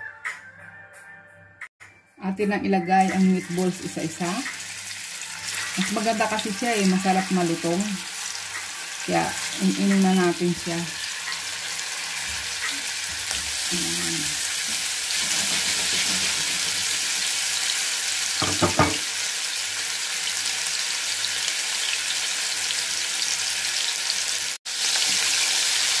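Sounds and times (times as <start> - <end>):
meatballs sizzling in oil: 3.2 - 26.0.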